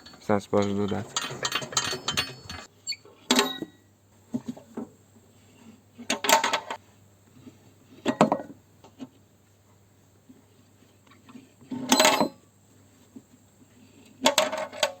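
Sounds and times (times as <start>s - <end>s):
metal tools clinking and clanking: 0.0s - 2.7s, 3.3s - 3.7s.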